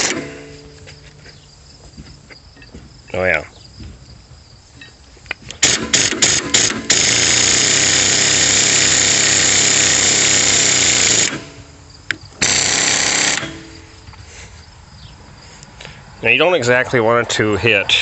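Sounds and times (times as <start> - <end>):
air impact wrench hammering: 0.0 - 0.9, 5.5 - 13.9.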